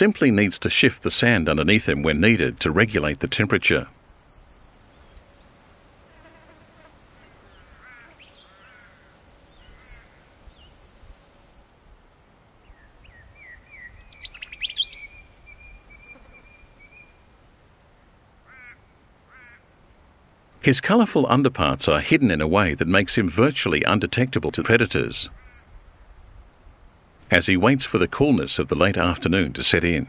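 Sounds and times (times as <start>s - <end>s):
wild birds chirping and trilling: 4.9s - 5.8s, 7.1s - 10.8s, 12.6s - 17.3s.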